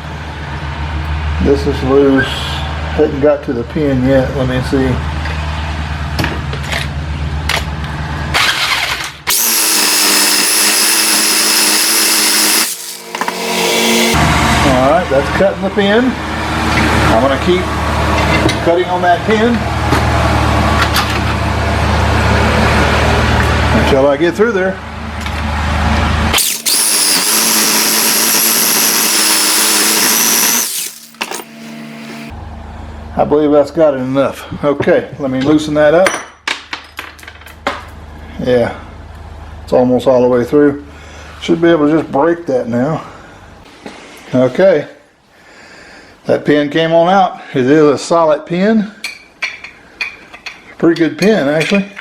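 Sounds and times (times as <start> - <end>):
saber saw cutting metal: 9.3 - 14.4, 26.4 - 32.3.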